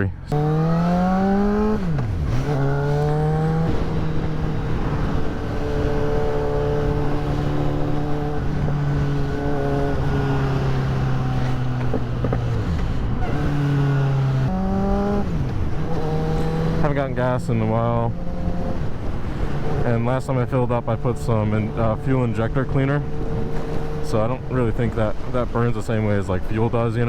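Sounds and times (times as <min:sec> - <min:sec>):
motorcycle engine upshifting: 0:00.2 - 0:25.6
wind rush: 0:00.5 - 0:16.8, 0:17.4 - 0:19.9.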